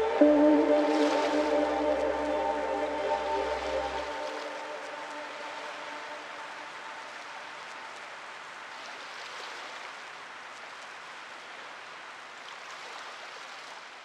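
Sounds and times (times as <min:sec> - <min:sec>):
held music tones: 0:00.0 - 0:06.7.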